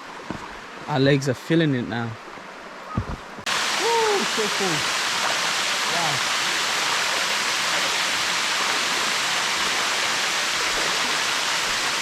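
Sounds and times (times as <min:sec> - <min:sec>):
rushing falling water: 0:03.4 - 0:12.0.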